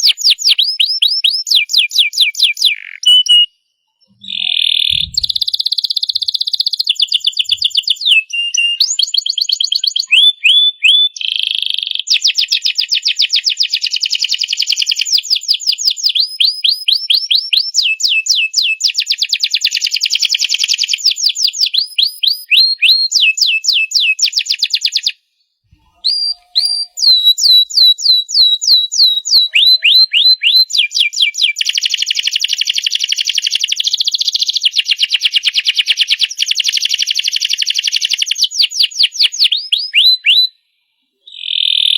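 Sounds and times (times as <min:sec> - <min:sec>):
canary singing: 0:00.0 - 0:11.9, 0:25.7 - 0:32.2.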